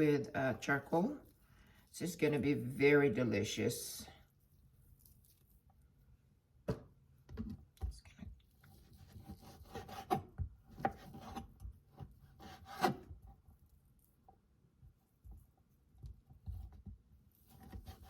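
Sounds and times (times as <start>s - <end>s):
knife scraping cutting board: 8.7s - 13.2s, 17.4s - 18.0s.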